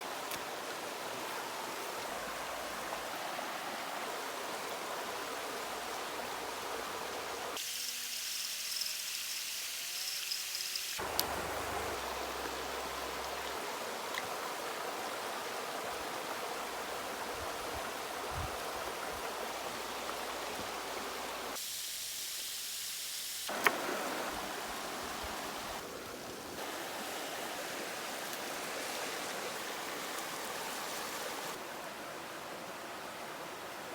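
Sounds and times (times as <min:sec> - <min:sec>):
creek water rushing: 0:00.0 - 0:07.6, 0:11.0 - 0:21.6, 0:23.5 - 0:33.9.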